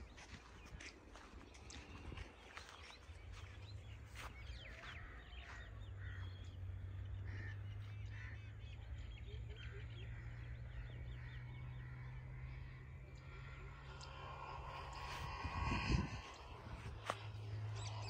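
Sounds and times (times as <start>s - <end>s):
birds chirping: 0.0s - 18.0s
steady low hum: 4.7s - 18.0s.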